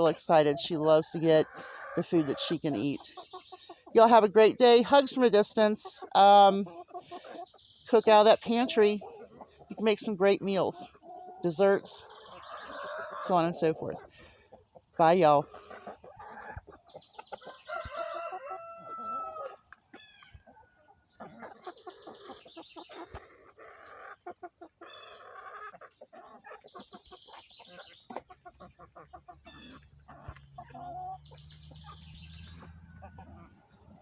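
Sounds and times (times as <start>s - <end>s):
chickens clucking: 0.0s - 34.0s
chickens pecking at food: 5.4s - 10.0s, 10.8s - 34.0s
rooster crowing: 17.4s - 19.6s, 30.7s - 33.7s.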